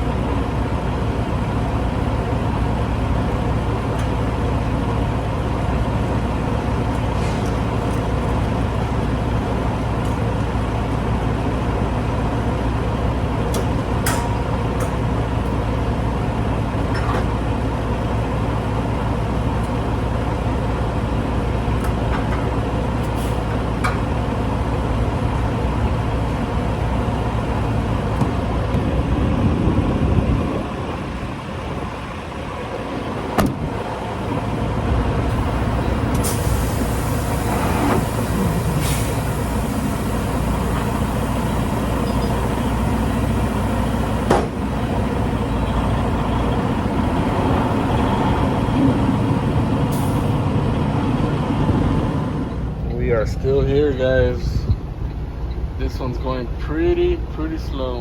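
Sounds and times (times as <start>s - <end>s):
diesel truck engine running: 0.0s - 58.0s
hisses: 35.5s - 43.6s.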